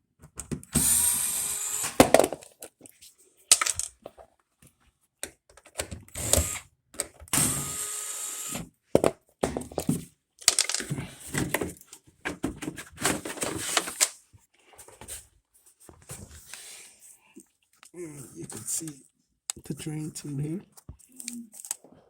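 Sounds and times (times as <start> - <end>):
cordless power driver running: 0.8 - 2.1, 6.1 - 6.6, 7.4 - 8.6.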